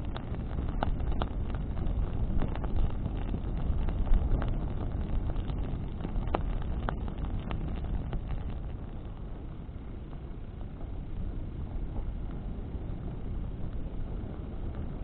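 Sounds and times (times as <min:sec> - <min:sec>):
burning wood crackling: 0:00.0 - 0:15.0
wind on microphone: 0:00.0 - 0:15.0.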